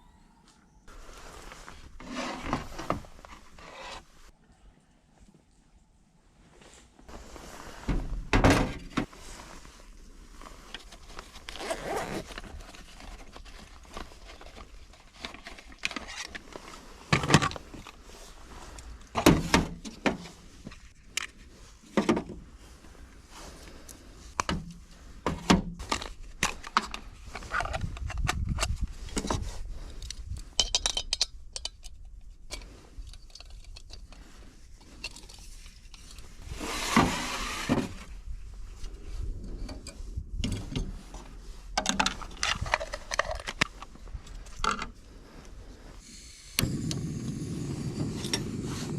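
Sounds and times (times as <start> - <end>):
camping gear knocking and scraping: 0.9 - 4.3, 7.1 - 23.5, 24.2 - 45.2.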